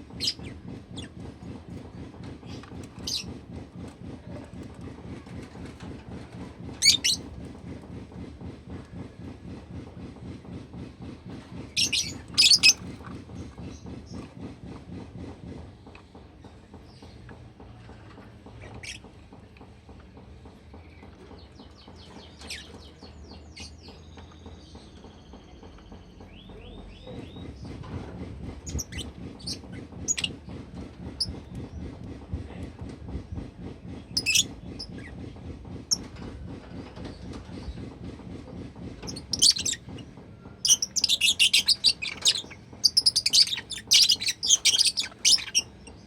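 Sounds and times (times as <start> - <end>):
low rustling clatter: 23.9 - 46.0.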